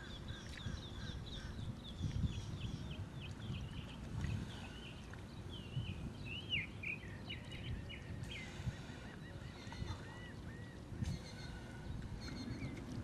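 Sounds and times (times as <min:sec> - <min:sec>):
birds whistling: 0:03.6 - 0:12.8.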